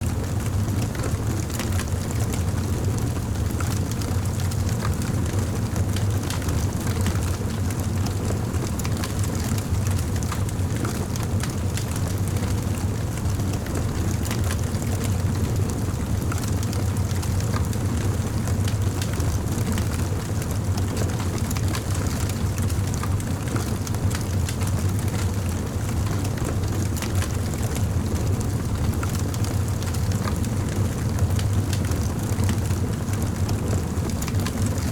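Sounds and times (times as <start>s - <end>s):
campfire flame rumble: 0.0s - 34.9s
burning wood crackling and popping: 13.2s - 34.9s.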